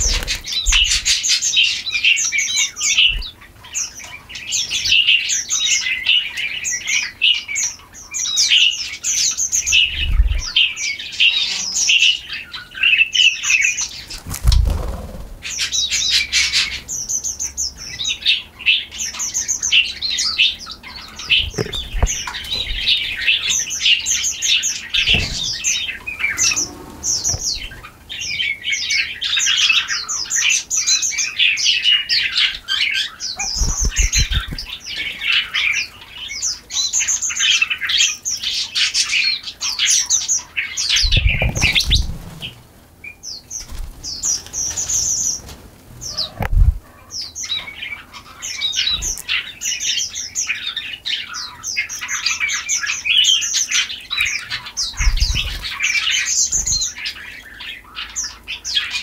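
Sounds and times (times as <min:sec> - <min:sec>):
small birds chirping: 0:00.0 - 0:59.0
low thumps: 0:21.3 - 0:23.1, 0:25.0 - 0:27.8.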